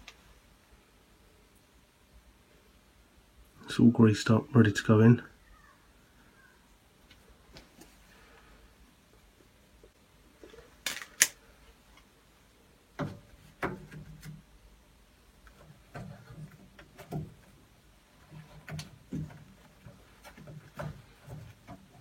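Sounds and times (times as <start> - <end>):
knocks of metal and plastic parts: 13.0 - 14.5, 15.5 - 17.6, 18.3 - 22.0.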